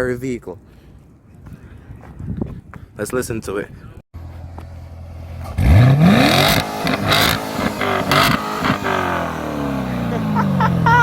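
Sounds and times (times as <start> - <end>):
car engine revving with crackles: 4.2 - 11.0.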